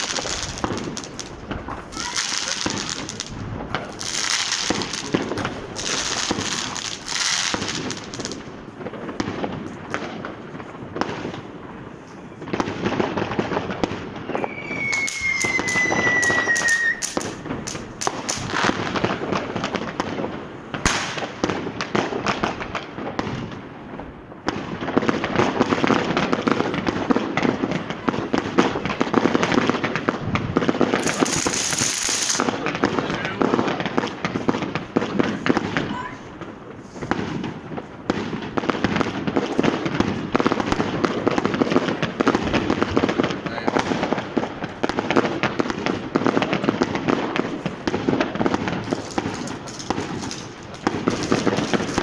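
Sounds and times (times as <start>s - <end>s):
fireworks banging and crackling: 0.0s - 52.0s
firework whistle: 14.2s - 17.8s.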